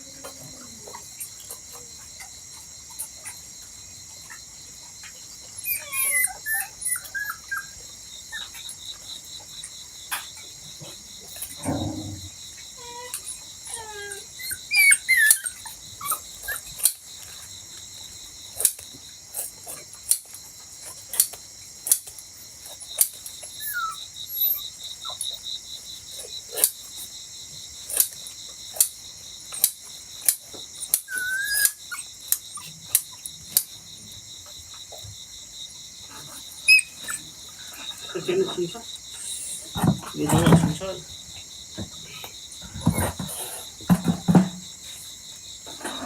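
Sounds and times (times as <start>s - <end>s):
crickets chirring: 0.0s - 46.0s
dog whining: 5.5s - 8.6s, 11.3s - 16.8s, 23.5s - 25.4s, 30.8s - 33.3s, 36.1s - 38.3s.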